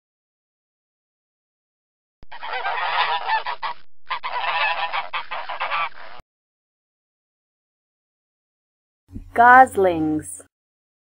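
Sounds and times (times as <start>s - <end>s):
geese honking: 2.3s - 6.2s.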